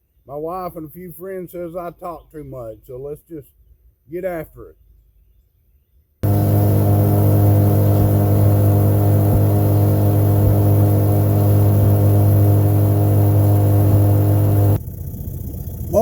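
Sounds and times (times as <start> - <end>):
engine running steady hum: 6.2 - 16.0.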